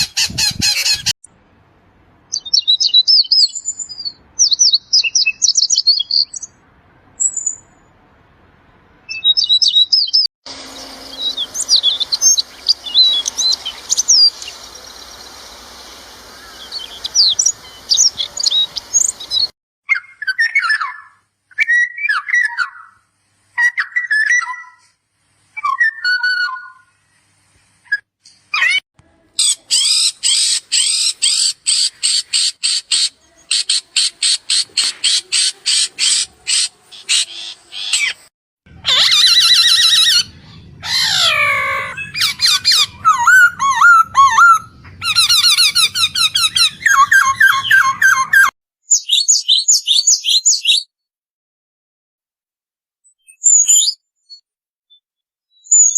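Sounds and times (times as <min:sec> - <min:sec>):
songbirds singing: 0:02.3 - 0:06.6, 0:09.1 - 0:23.0, 0:38.8 - 0:50.8
steady hiss: 0:10.5 - 0:19.3.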